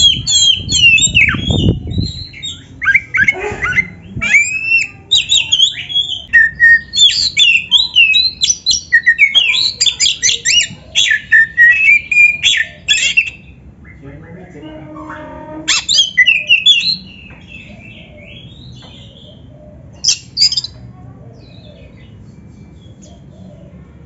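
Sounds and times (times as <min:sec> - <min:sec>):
bird singing whistled song: 0:00.0 - 0:14.0, 0:15.7 - 0:18.7, 0:20.0 - 0:20.8.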